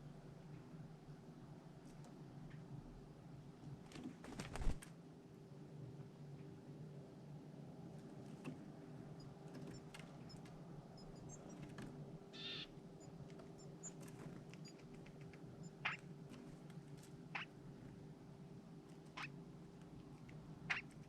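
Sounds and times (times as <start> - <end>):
small birds chirping: 9.1 - 16.1, 17.3 - 17.6, 20.0 - 21.0.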